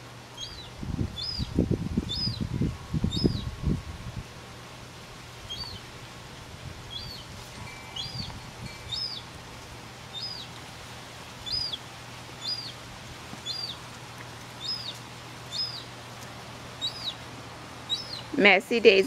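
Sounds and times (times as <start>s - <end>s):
gull chick peeping: 0.4s - 2.5s, 3.1s - 3.5s, 5.4s - 5.9s, 6.9s - 7.3s, 7.9s - 9.4s, 10.1s - 10.6s, 11.4s - 11.8s, 12.4s - 12.8s, 13.4s - 13.9s, 14.6s - 15.9s, 16.8s - 18.3s.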